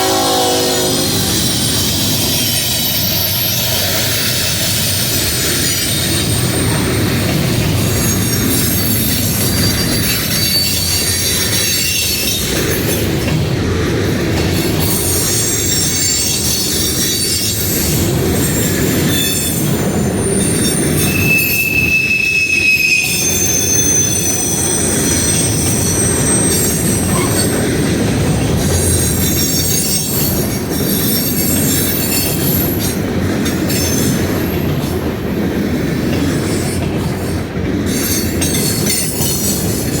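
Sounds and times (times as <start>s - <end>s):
high wheel squeals: 0.0s - 7.2s, 7.8s - 12.5s, 14.7s - 28.0s
freight train rumbling on rails: 0.0s - 40.0s.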